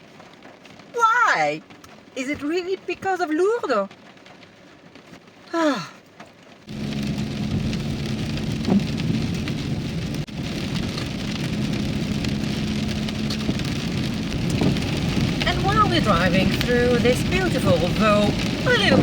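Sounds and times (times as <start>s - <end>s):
rain and wet road noise: 0.0s - 19.0s
low engine hum: 6.7s - 19.0s.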